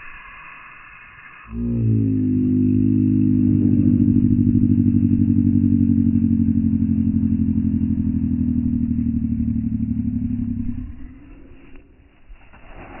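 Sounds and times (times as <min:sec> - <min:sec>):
pulsing low synthesizer chord: 0:01.5 - 0:11.5.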